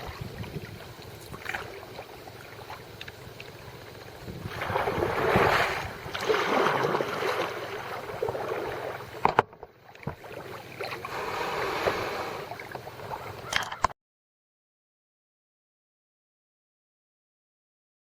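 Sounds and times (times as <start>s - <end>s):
water sloshing around a kayak: 0.0s - 13.6s.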